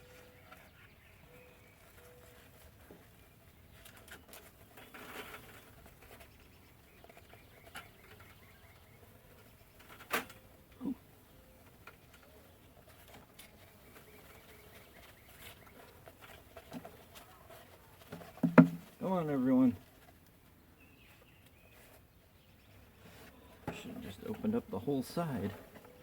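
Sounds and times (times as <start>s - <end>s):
clicks and knocks of wooden hive parts: 11.6s - 19.0s.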